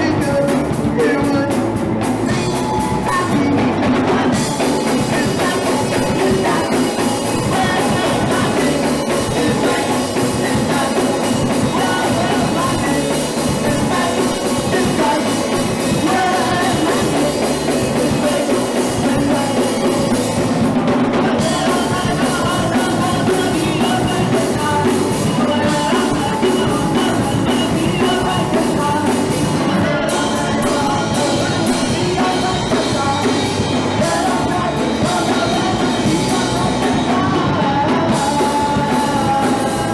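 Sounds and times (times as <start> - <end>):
punk rock band playing: 0.0 - 39.9.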